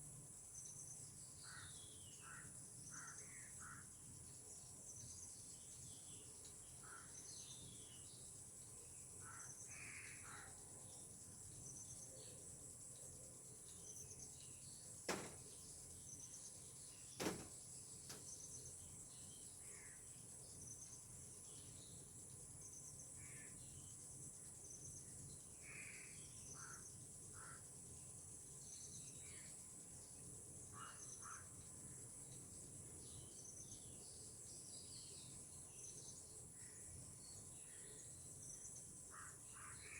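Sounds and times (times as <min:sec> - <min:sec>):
insects droning: 0:00.0 - 0:39.9
crow-like caws: 0:01.5 - 0:03.9, 0:06.8 - 0:07.2, 0:09.2 - 0:10.6, 0:26.6 - 0:27.6, 0:30.8 - 0:31.5, 0:39.1 - 0:39.9.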